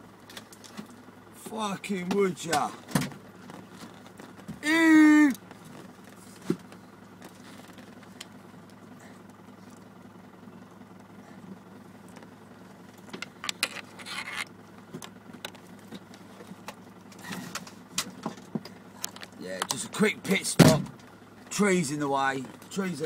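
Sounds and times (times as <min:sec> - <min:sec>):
car engine idling: 0:00.0 - 0:23.0
scraping rustles: 0:02.6 - 0:04.6, 0:05.4 - 0:08.2.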